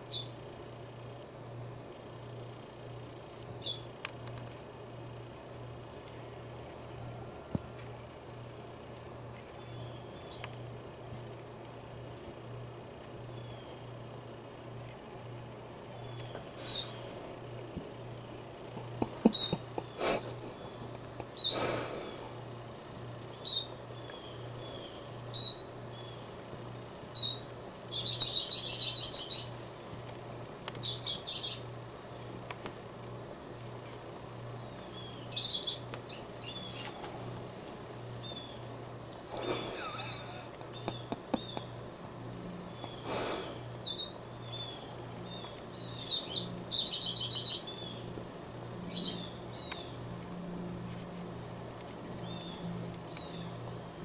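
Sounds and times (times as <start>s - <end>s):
small songbird chirping: 0.0s - 1.4s, 2.0s - 4.7s, 9.5s - 12.2s, 13.2s - 14.0s, 15.8s - 18.6s, 19.2s - 21.6s, 22.3s - 26.4s, 27.1s - 29.7s, 30.7s - 32.4s, 34.5s - 37.0s, 38.1s - 38.8s, 39.4s - 50.0s, 51.2s - 54.0s
low pulsing hum: 0.0s - 54.0s.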